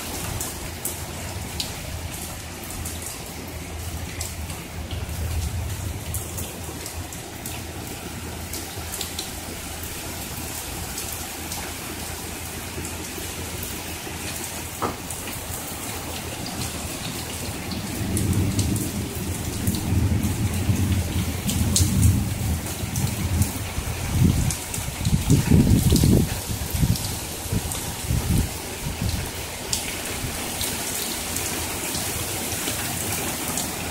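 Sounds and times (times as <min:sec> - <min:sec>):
raindrops ticking close by: 0:00.0 - 0:33.9
steady rain: 0:00.0 - 0:33.9
thunder rumbling: 0:00.2 - 0:11.3, 0:14.7 - 0:30.6.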